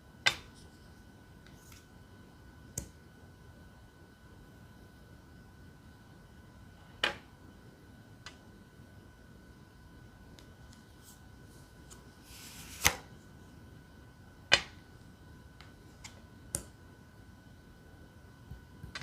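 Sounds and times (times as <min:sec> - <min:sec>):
cards sliding rustle: 0:10.7 - 0:13.2.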